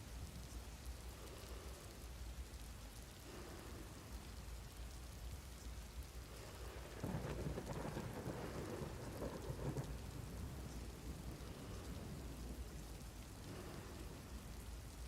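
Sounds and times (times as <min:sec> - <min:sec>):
steady rain falling: 0:00.0 - 0:15.0
thunder rumbling: 0:06.2 - 0:15.0.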